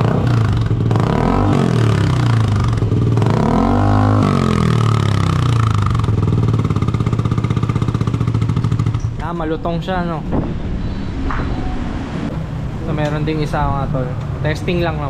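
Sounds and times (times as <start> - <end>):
motorcycle engine idling and revving: 0.0 - 9.6.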